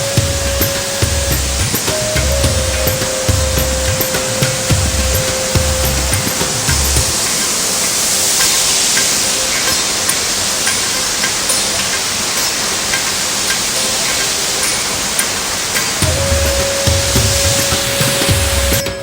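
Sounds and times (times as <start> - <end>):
background music beats: 0.0 - 7.7, 15.8 - 19.0
waterfall rushing: 0.0 - 19.0.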